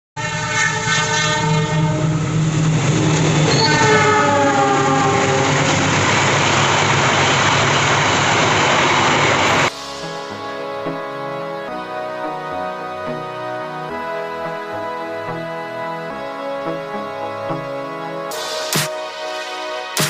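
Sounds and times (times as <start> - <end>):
train horn blasts: 0.2 - 2.4, 3.5 - 6.0, 9.6 - 20.0
train rumbling: 0.2 - 11.1
music: 9.7 - 20.0.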